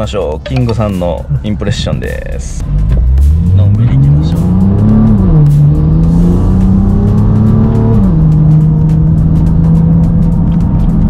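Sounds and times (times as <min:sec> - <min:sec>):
car engine through exhaust: 0:02.6 - 0:11.0.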